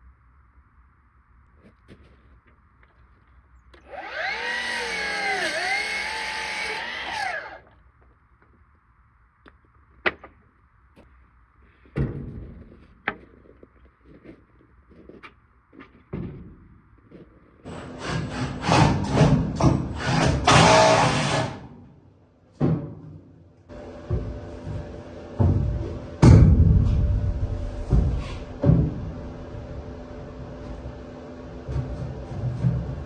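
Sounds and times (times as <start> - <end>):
power tool whining: 3.8 - 7.7.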